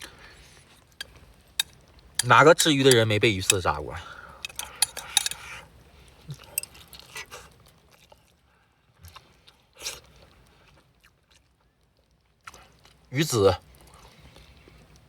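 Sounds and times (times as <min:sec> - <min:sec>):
person chewing: 0:04.4 - 0:05.7, 0:06.3 - 0:08.4, 0:09.0 - 0:13.1.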